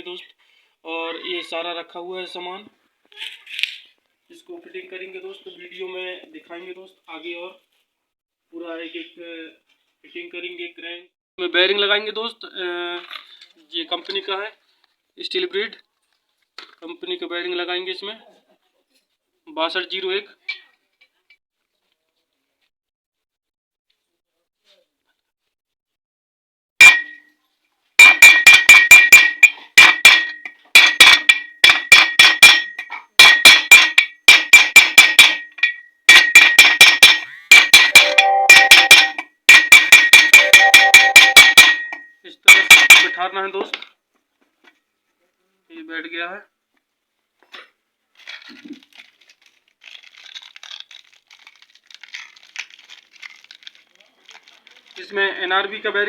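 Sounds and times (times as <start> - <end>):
hammer striking metal: 26.8 - 27.2, 28.0 - 43.2
packaging crinkling and rustling: 48.1 - 55.2.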